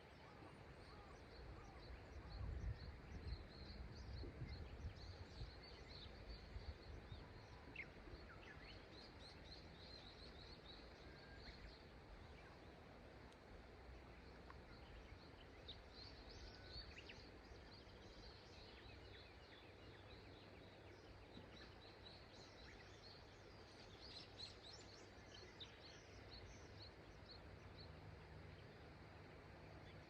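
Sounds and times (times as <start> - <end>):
river flowing: 23.1 - 30.0.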